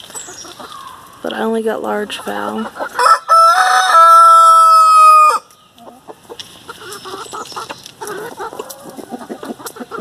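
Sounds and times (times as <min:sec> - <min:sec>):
chickens clucking: 0:00.0 - 0:10.0
rooster crowing: 0:03.0 - 0:05.5.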